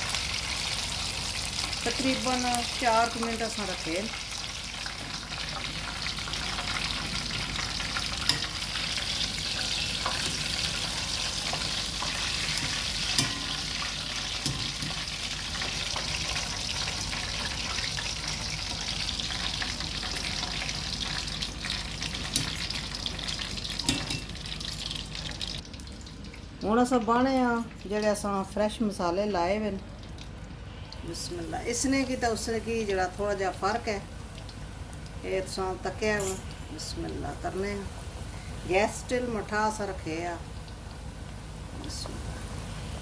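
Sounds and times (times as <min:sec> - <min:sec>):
chicken sizzling in hot oil: 0:00.0 - 0:26.2.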